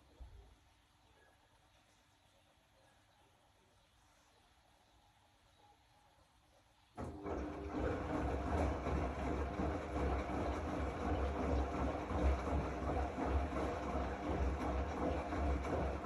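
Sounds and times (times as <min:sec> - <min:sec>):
washing machine rumbling: 0:07.0 - 0:16.0.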